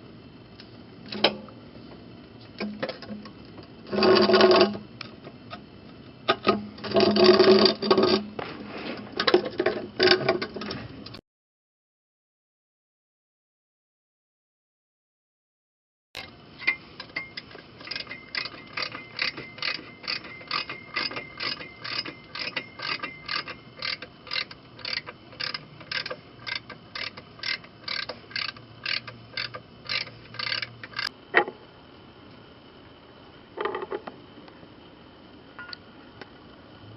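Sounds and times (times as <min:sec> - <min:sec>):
ratchet wrench clicking: 0:16.6 - 0:31.1.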